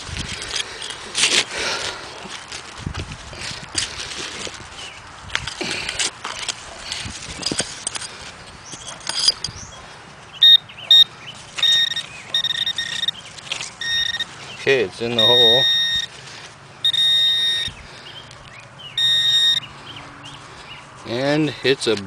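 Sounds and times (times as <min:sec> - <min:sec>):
digging tool scraping gravelly dirt: 0:00.0 - 0:09.8
metal detector beeps: 0:10.4 - 0:13.2, 0:13.8 - 0:14.4, 0:15.1 - 0:16.2, 0:16.8 - 0:17.8, 0:18.9 - 0:19.7.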